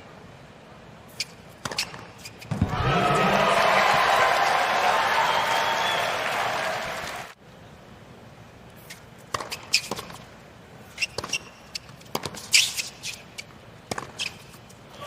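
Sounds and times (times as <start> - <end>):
shoe squeaks: 1.1 - 2.6, 8.8 - 14.7.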